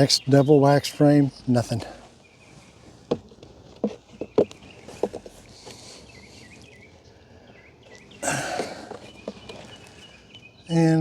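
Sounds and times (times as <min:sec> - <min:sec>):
wooden frames knocking: 0:03.1 - 0:05.4.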